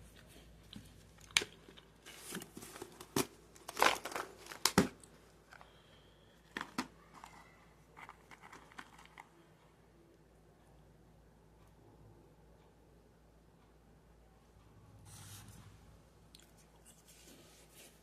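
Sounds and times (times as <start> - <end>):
plastic snack packet crinkling: 0.7 - 5.7, 6.4 - 9.3.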